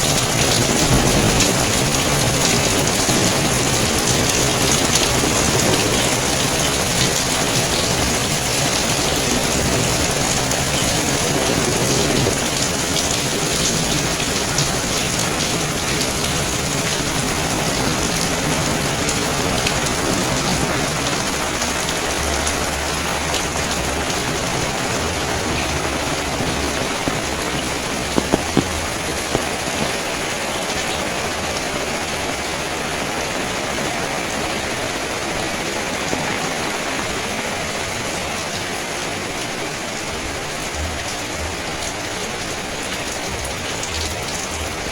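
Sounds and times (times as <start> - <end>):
sharp drips: 0.0 - 31.0
rain splashing on hard surfaces: 0.0 - 44.9.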